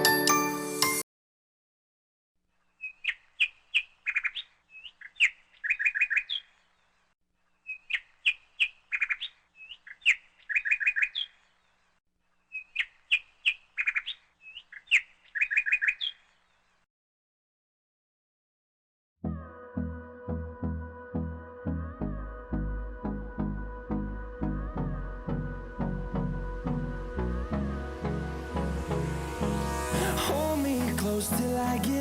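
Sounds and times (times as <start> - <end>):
bird chirps and trills: 2.7 - 6.9, 7.6 - 11.8, 12.5 - 16.6.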